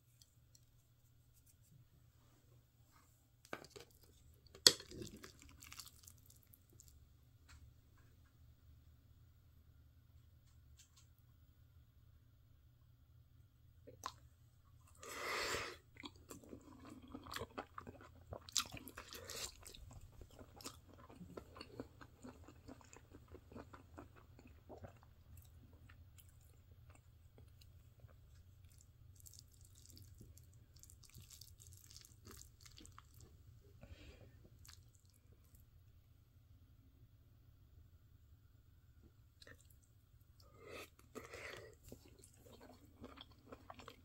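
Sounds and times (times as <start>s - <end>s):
faint chewing of food: 2.9s - 7.7s, 13.9s - 35.7s, 39.0s - 44.0s.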